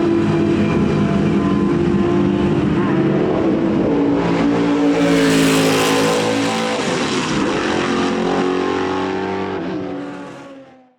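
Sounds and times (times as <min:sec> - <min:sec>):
race car engine passing: 0:00.2 - 0:10.8.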